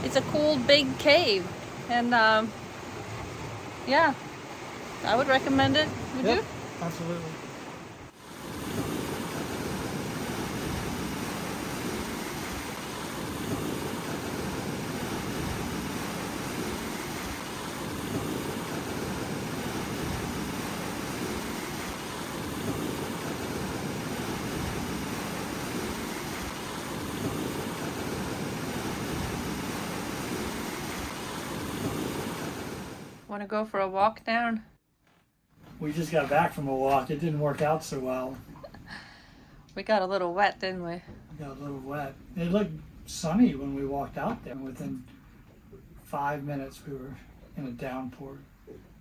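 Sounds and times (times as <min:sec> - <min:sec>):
ocean surf washing: 0:00.0 - 0:33.3.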